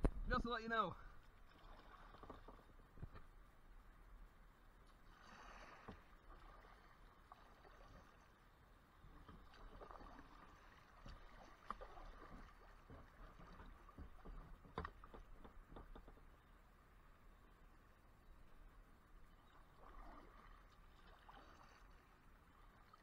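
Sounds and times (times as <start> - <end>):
kayak paddle splashing water: 1.1 - 3.1, 4.8 - 16.2, 19.3 - 23.0.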